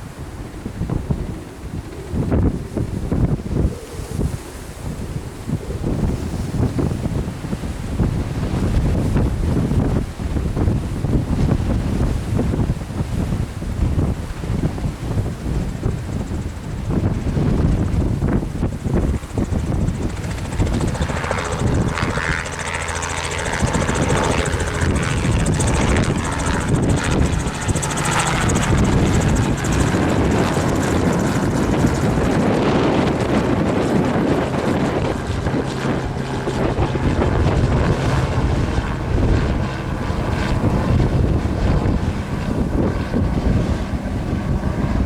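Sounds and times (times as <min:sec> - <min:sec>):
helicopter rotor and engine hum: 0:00.0 - 0:45.0
wind buffeting microphone: 0:00.0 - 0:45.0.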